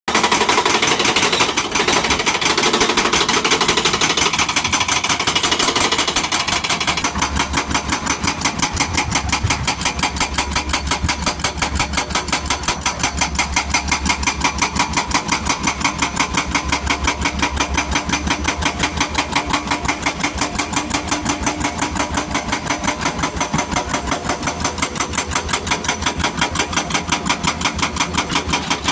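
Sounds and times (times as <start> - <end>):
excavator pounding: 0.1 - 28.9.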